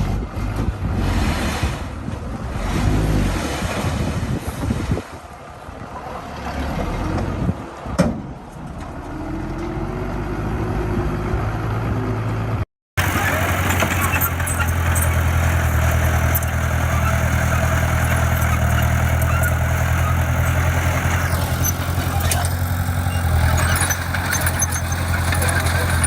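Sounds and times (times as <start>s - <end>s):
diesel engine running: 5.4s - 26.0s.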